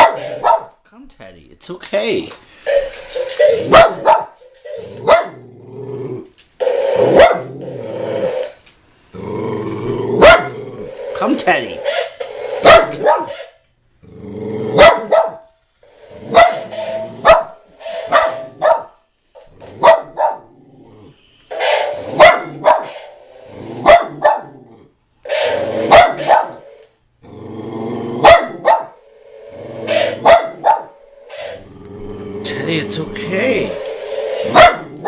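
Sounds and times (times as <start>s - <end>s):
dog barking: 0.0s - 0.8s, 3.4s - 4.4s, 5.0s - 5.4s, 7.1s - 7.5s, 10.2s - 10.6s, 12.6s - 13.4s, 14.8s - 15.5s, 16.3s - 19.0s, 19.8s - 20.5s, 22.1s - 23.0s, 23.8s - 24.5s, 25.8s - 26.6s, 28.2s - 29.0s, 30.1s - 31.0s, 34.5s - 34.9s
dog growling: 4.7s - 6.3s, 7.0s - 11.2s, 14.0s - 15.1s, 16.0s - 18.9s, 19.5s - 26.6s, 27.2s - 35.0s.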